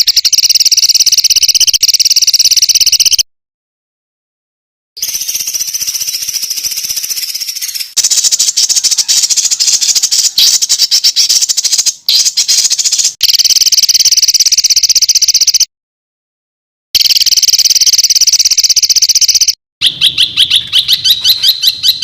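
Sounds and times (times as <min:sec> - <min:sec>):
songbird trills and chatter: 0:05.0 - 0:13.2, 0:19.8 - 0:22.0.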